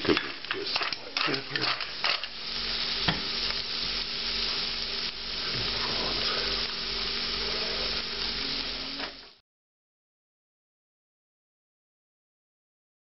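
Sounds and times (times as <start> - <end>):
food sizzling in butter: 0.0 - 9.4.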